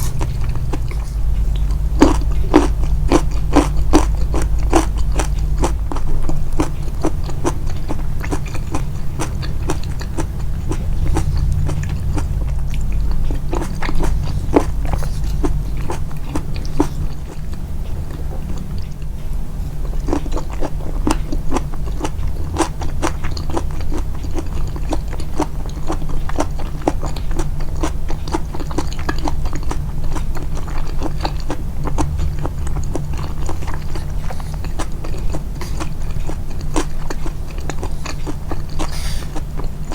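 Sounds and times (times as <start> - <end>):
low hum: 0.0 - 20.1
person chewing food: 0.0 - 39.9.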